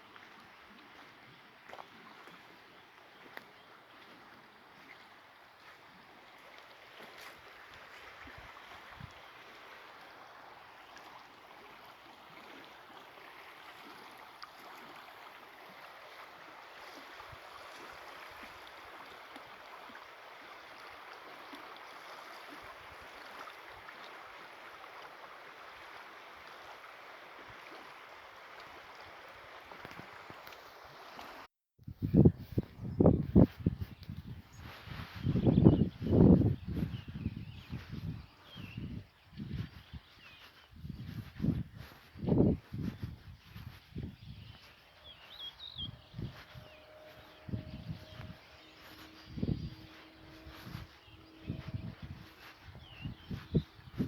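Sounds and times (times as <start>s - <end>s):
stream water rushing: 4.0s - 31.5s, 44.6s - 54.0s.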